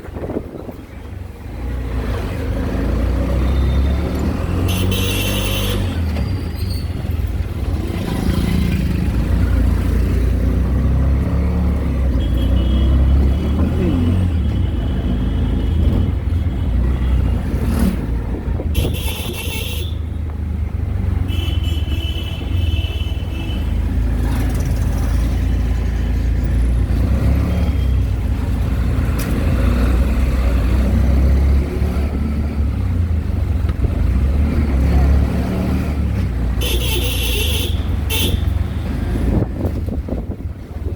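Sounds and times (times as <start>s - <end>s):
auto-rickshaw engine: 0.0s - 40.9s
road rumble: 0.0s - 40.9s
horns beeping: 3.4s - 6.2s.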